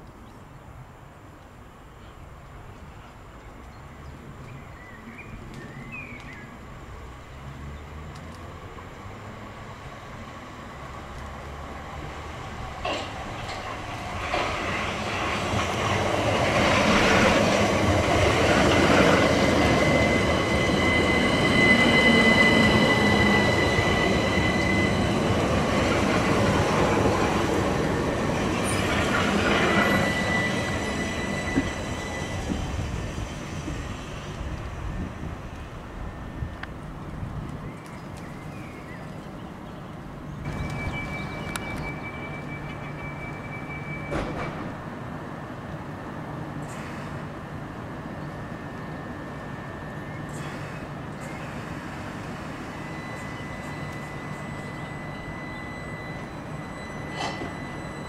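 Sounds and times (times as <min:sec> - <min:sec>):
train wheels rumbling on rail: 0:08.0 - 0:39.0, 0:39.8 - 0:58.0
steady high whine: 0:40.4 - 0:58.0.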